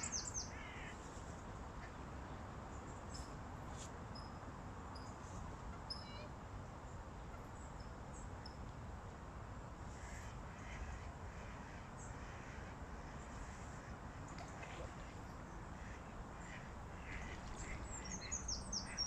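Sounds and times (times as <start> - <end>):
birds calling: 0.0 - 0.9, 15.8 - 19.0.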